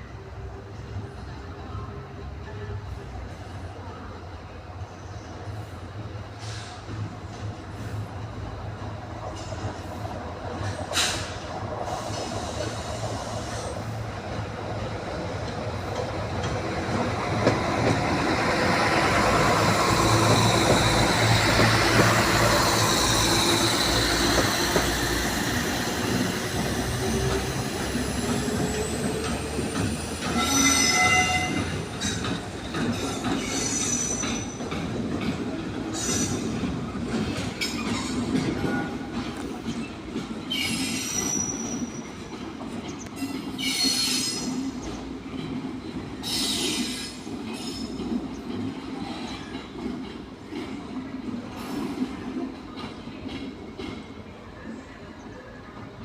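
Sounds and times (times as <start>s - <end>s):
diesel locomotives passing: 0.0s - 56.0s
high wheel squeal: 33.4s - 34.6s, 40.5s - 42.2s, 43.2s - 44.7s.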